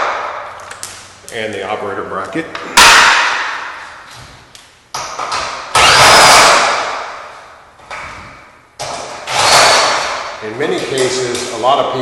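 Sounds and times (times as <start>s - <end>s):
metal banging on garage door: 7.9s - 11.7s.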